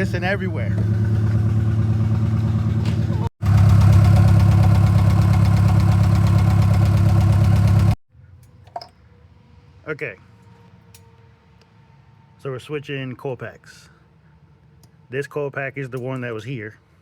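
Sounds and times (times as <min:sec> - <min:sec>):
engine idling with misfire: 0:00.0 - 0:08.0.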